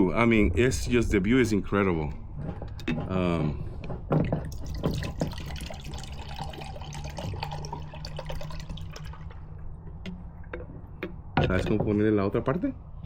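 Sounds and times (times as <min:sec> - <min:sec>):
water pouring into container: 0:04.5 - 0:09.6.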